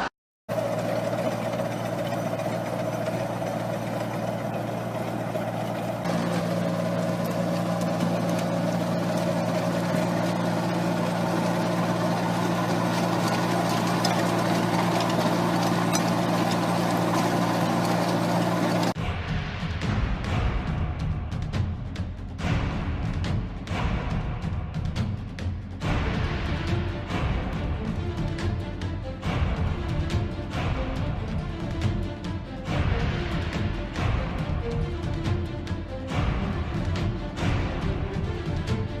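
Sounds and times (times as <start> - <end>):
farm machine engine running: 0.0 - 19.0, 25.8 - 39.0.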